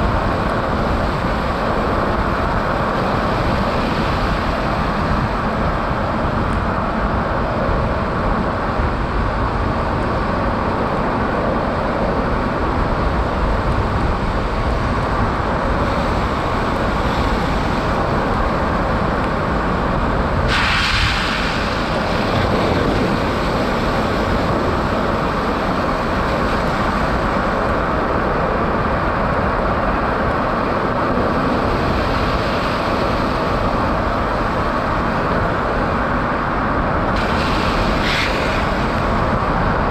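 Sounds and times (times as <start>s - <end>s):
tyre and wind road noise: 0.0s - 39.9s
loud hiss: 20.5s - 22.2s, 37.2s - 39.2s.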